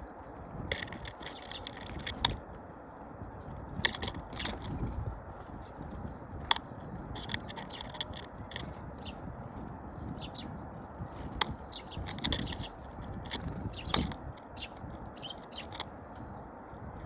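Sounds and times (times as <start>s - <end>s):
small birds chirping: 0.0s - 17.0s
wing flutters: 0.4s - 16.4s.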